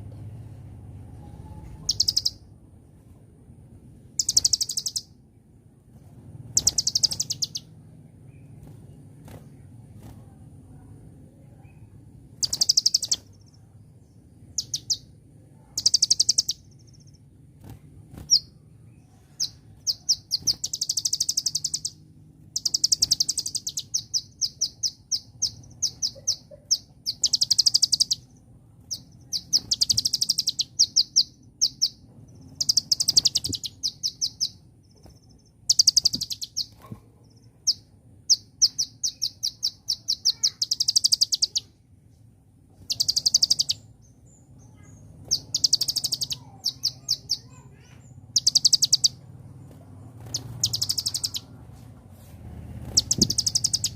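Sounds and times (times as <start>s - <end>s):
bird singing clicking trills: 1.6s - 2.4s, 4.2s - 5.1s, 6.6s - 9.7s, 11.7s - 13.6s, 14.5s - 15.1s, 15.8s - 18.5s, 19.4s - 37.0s, 37.6s - 41.7s, 42.7s - 51.5s, 52.8s - 53.9s.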